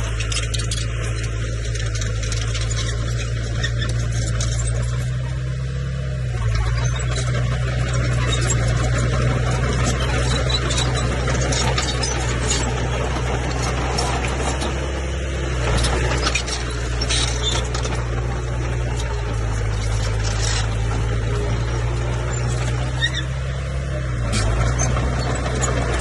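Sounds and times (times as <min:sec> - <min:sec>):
machine clicks and squeaks: 0:00.0 - 0:05.4, 0:06.4 - 0:14.8, 0:15.7 - 0:23.5, 0:24.2 - 0:26.0
diesel engine droning: 0:00.0 - 0:26.0.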